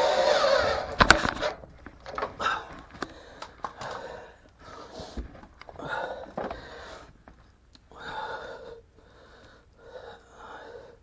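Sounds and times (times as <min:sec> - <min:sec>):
power drill whining: 0:00.0 - 0:01.6.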